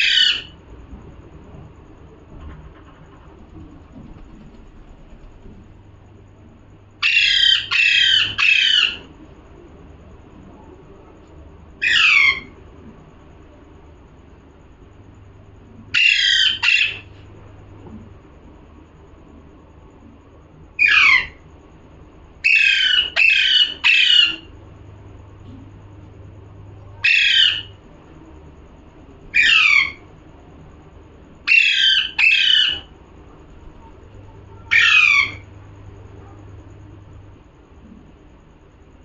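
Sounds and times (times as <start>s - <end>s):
parrot squawking: 0.0s - 0.5s, 7.0s - 9.0s, 11.8s - 12.5s, 15.9s - 17.0s, 20.8s - 21.4s, 22.4s - 24.5s, 27.0s - 27.7s, 29.3s - 30.1s, 31.5s - 32.9s, 34.6s - 35.4s.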